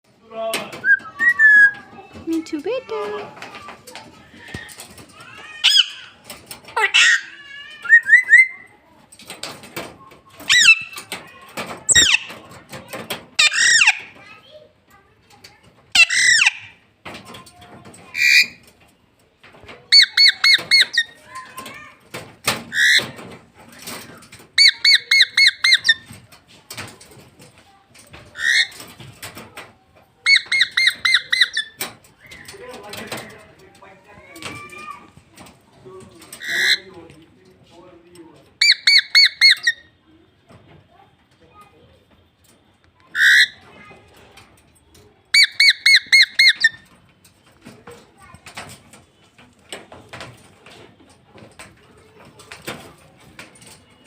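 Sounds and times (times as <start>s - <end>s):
parrot chirping: 0.8s - 1.8s, 5.4s - 6.2s, 6.8s - 8.7s, 10.5s - 11.0s, 11.9s - 12.3s, 13.4s - 14.1s, 15.9s - 16.8s, 19.9s - 21.2s, 24.6s - 26.1s, 30.2s - 32.5s, 38.6s - 39.9s, 43.1s - 43.6s, 45.3s - 46.9s
parrot squawking: 5.4s - 6.2s, 6.8s - 8.7s, 10.5s - 11.0s, 13.4s - 14.1s, 15.9s - 16.7s, 24.6s - 26.1s, 30.2s - 31.8s, 38.6s - 39.8s, 43.1s - 43.6s, 45.3s - 46.8s
parrot squawk: 5.6s - 6.1s, 6.8s - 8.6s, 16.0s - 16.7s, 43.2s - 43.6s, 45.3s - 46.8s.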